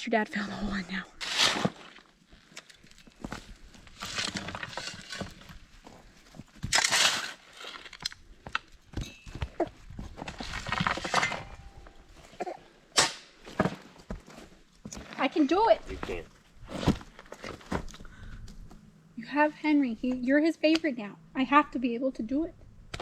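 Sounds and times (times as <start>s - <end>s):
shovel scraping dirt and gravel: 1.2s - 2.2s, 3.9s - 5.8s, 6.5s - 8.0s, 10.1s - 12.3s, 13.0s - 17.7s.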